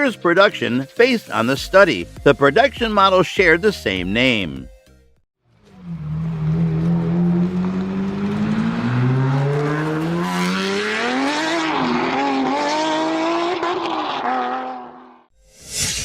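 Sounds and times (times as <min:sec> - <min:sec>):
sports car engine accelerating: 0:05.5 - 0:15.3.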